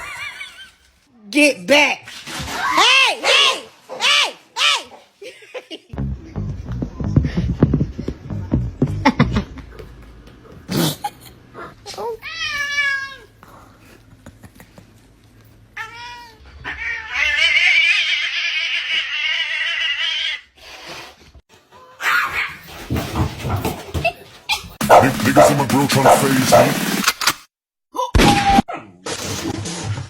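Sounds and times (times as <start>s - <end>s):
cat yowling: 15.8s - 20.4s.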